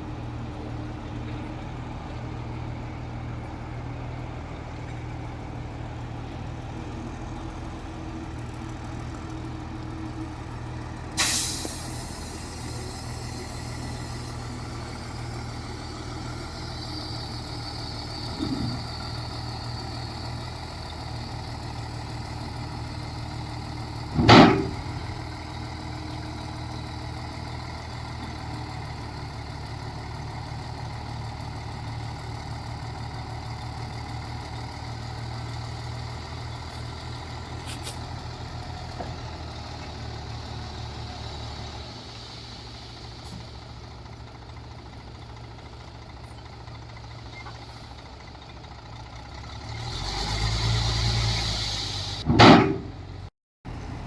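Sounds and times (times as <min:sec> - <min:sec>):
diesel engine idling: 0:00.0 - 0:54.0
air brakes hissing: 0:11.1 - 0:20.2, 0:37.5 - 0:38.2, 0:41.0 - 0:43.9, 0:50.5 - 0:52.9.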